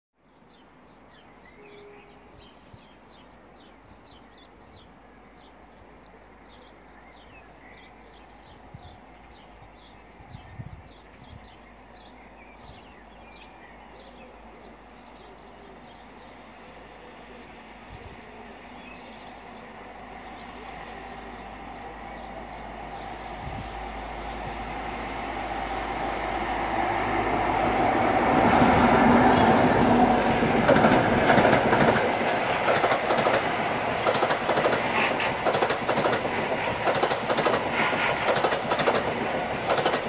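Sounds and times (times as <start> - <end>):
small birds chirping: 0.2 - 24.7
distant train rumble: 0.3 - 40.0.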